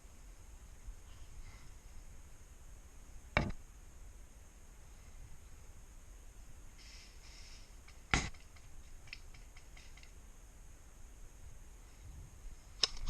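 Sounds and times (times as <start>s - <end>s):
faint clicks: 7.6s - 10.2s.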